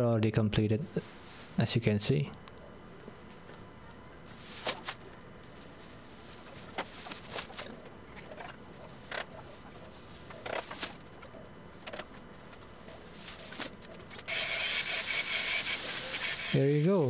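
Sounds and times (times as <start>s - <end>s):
dry grass rustling and crackling: 4.3s - 14.3s.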